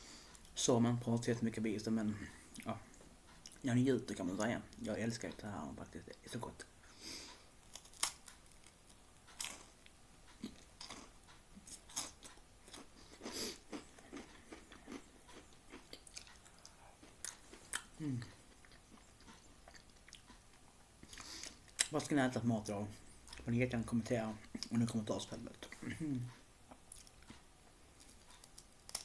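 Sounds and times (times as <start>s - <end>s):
crunching and chewing crispbread: 7.6s - 21.9s, 26.7s - 29.0s.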